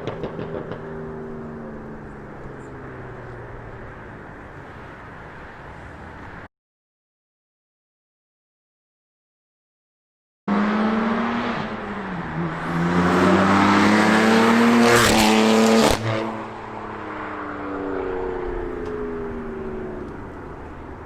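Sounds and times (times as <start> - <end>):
car engine accelerating: 10.5 - 17.0.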